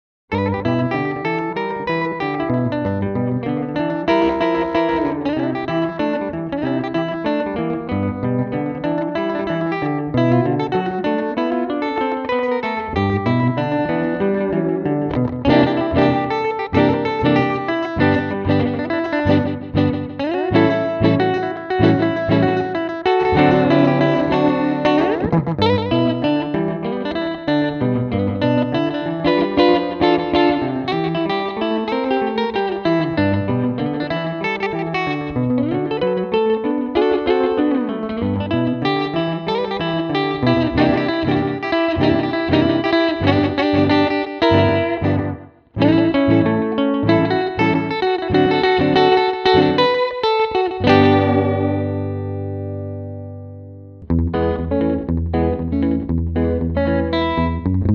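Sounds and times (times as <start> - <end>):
electric guitar through delay: 0.3 - 57.9.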